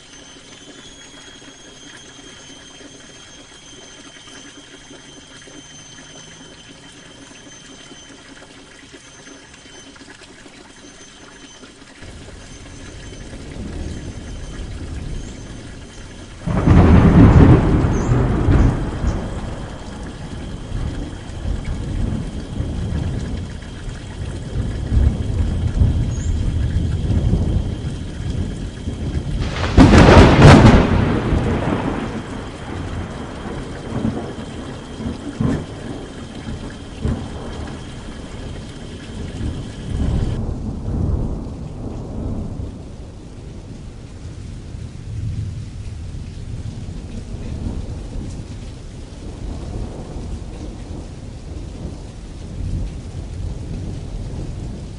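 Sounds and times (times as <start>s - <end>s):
rain on canvas: 0.0s - 54.9s
rolling thunder rumbling: 12.0s - 54.9s
loud crack of thunder: 16.4s - 23.5s, 24.2s - 43.8s.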